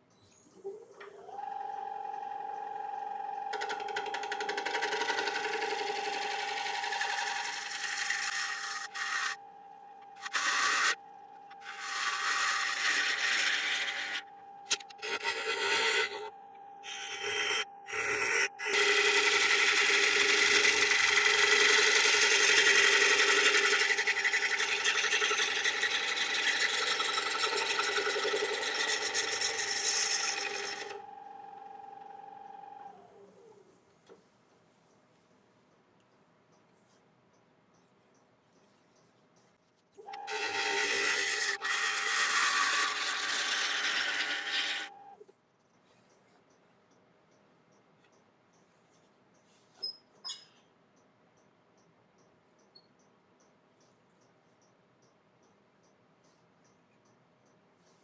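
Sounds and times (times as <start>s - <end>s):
wood lathe whining: 1.2s - 33.2s, 40.0s - 45.2s
turning tool cutting wood: 3.5s - 31.1s, 40.0s - 45.2s.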